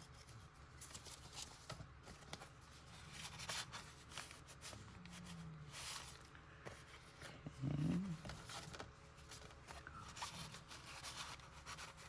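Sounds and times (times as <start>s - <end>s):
paper rustling and clicking: 0.0s - 5.2s, 8.2s - 12.0s.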